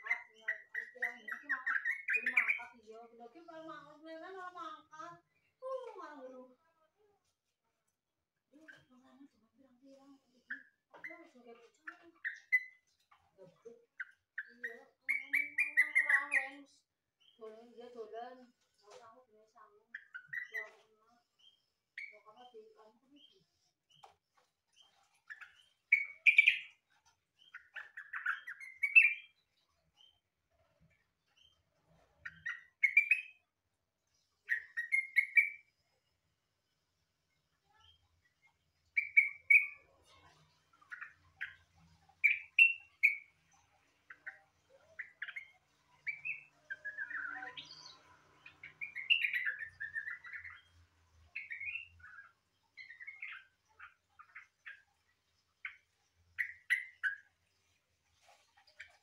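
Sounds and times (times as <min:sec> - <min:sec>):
bulbul singing: 0:00.0 - 0:02.9, 0:14.0 - 0:17.9, 0:25.3 - 0:26.8, 0:38.9 - 0:39.8, 0:45.0 - 0:54.9
songbird chirping and warbling: 0:00.0 - 0:59.0.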